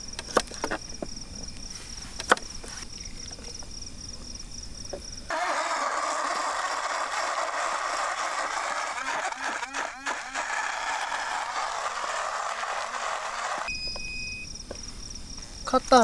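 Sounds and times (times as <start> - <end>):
crickets chirping: 0.0 - 5.4, 13.6 - 16.0
portable blender running: 5.3 - 13.7.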